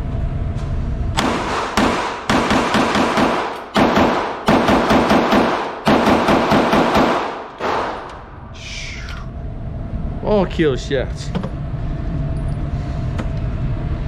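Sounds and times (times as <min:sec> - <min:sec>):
pistol shots: 0:01.2 - 0:08.2.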